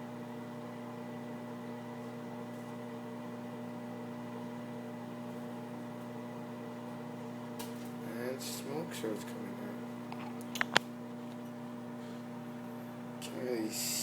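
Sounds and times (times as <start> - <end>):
microwave oven humming: 0.0 - 14.0
microwave click: 10.1 - 11.2.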